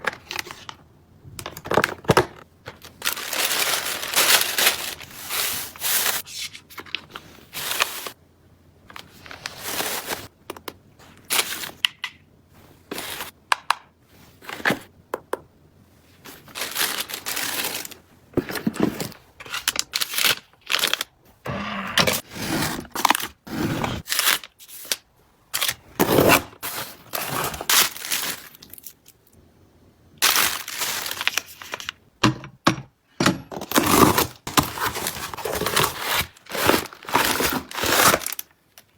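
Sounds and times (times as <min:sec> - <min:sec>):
plastic packaging crinkling: 0:01.4 - 0:08.2, 0:16.2 - 0:18.0, 0:18.8 - 0:21.2, 0:26.6 - 0:29.3, 0:30.2 - 0:32.0, 0:33.7 - 0:38.9.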